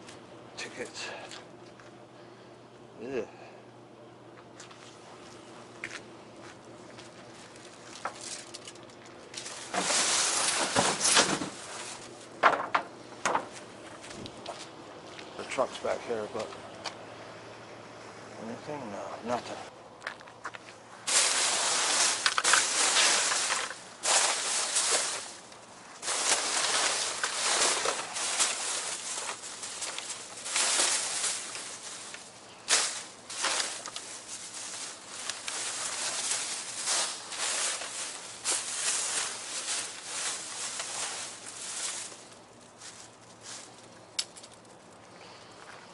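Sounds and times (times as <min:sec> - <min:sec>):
plastic bags rustling: 0:06.9 - 0:14.4, 0:21.0 - 0:45.0.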